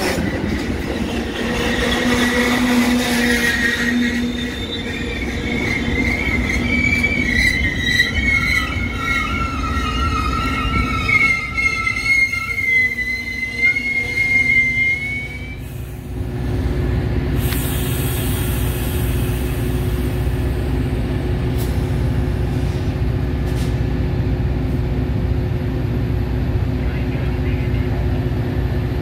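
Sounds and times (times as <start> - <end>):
train wheels squealing: 0.0 - 16.1
train rumbling past: 0.0 - 29.0.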